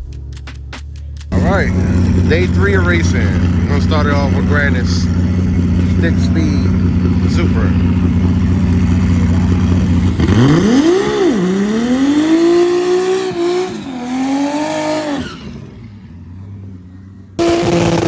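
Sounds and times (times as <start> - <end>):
drag race car engine revving: 1.3 - 18.0.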